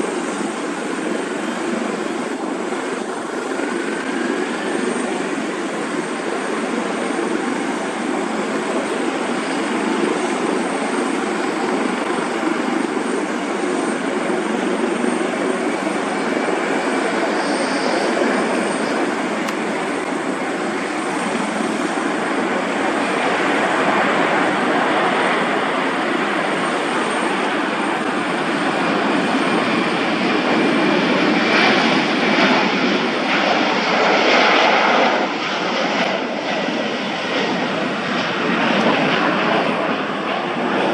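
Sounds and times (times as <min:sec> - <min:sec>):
jet engines roaring: 0:00.0 - 0:40.9.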